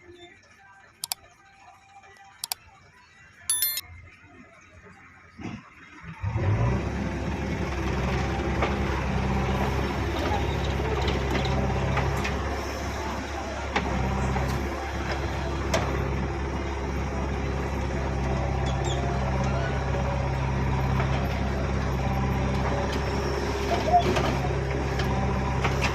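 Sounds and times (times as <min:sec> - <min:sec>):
heavy diesel engine running: 0:06.3 - 0:25.9.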